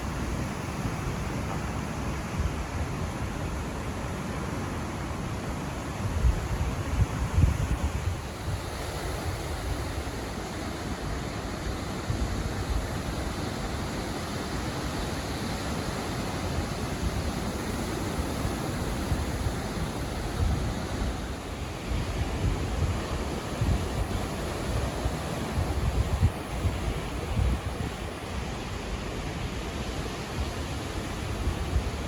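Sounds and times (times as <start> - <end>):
wind buffeting microphone: 6.0 - 10.7, 16.3 - 29.1.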